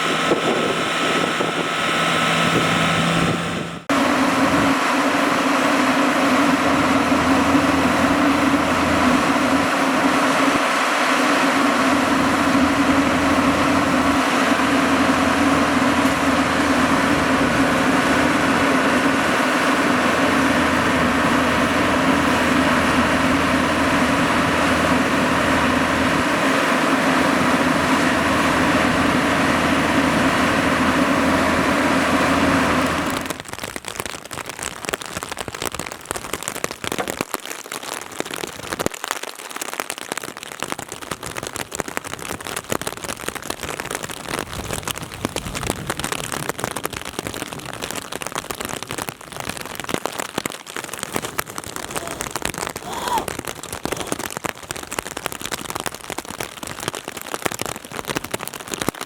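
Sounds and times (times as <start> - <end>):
diesel engine running: 0.0 - 33.5
crackling noise: 0.0 - 59.0.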